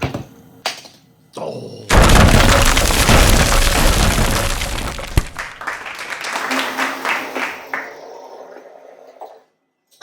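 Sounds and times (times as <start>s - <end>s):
sharp crack: 1.9s - 5.7s.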